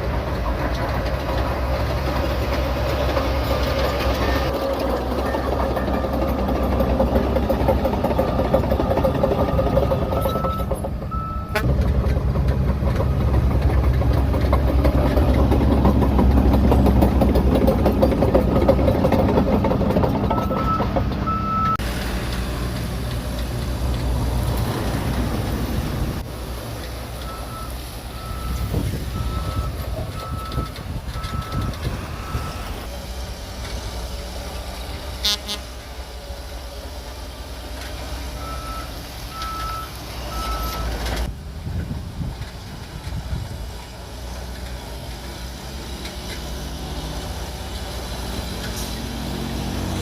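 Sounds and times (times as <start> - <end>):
bulldozer diesel engine running: 0.0 - 50.0
track clatter: 0.0 - 50.0
reversing alarm beeping: 9.4 - 11.6, 20.3 - 21.8, 27.2 - 32.8, 38.4 - 40.9.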